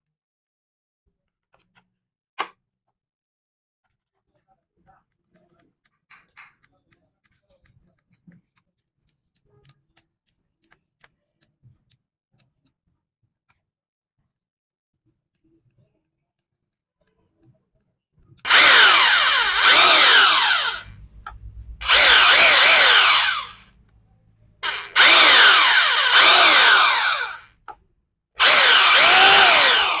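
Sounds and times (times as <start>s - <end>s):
hammer drill motor whirring: 18.5s - 23.7s, 24.6s - 27.6s, 28.4s - 30.0s.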